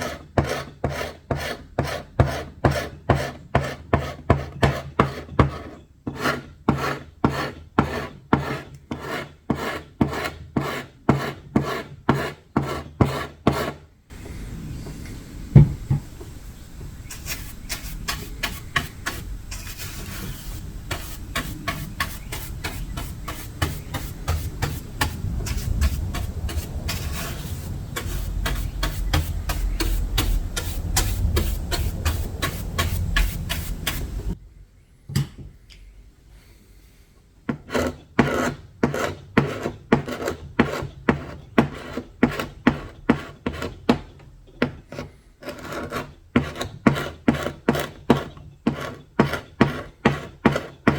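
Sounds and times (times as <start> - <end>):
wood being rubbed and rasped: 0.0 - 14.7, 16.0 - 34.4.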